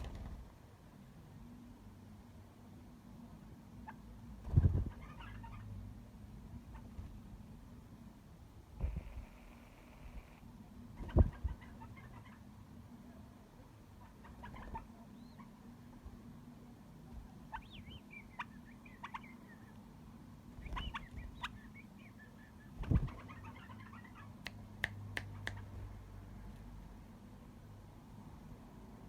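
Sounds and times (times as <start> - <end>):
canary chirping: 4.7 - 5.8, 11.0 - 12.5, 17.4 - 19.9, 20.5 - 24.4.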